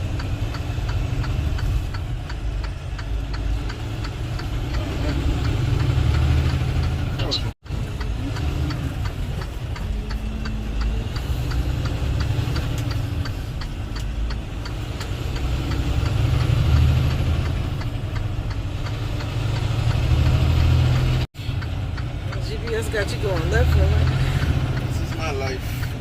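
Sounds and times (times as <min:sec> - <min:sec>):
diesel truck engine drone: 0:00.0 - 0:26.0
faint light ticking: 0:07.8 - 0:16.5.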